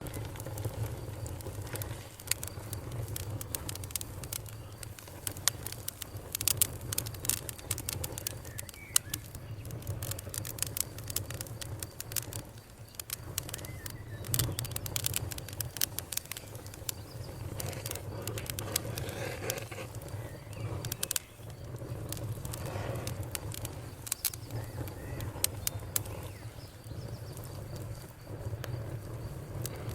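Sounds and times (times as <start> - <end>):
campfire crackling and popping: 0.0 - 29.9
faint bird calls: 23.6 - 27.4.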